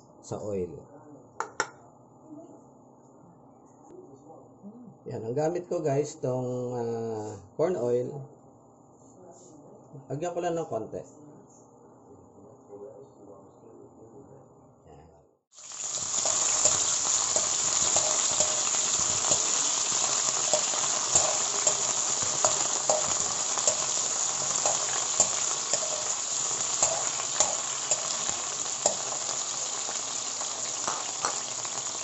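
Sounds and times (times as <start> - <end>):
potatoes sizzling in oil: 15.5 - 32.0
oil popping and crackling: 15.6 - 32.0.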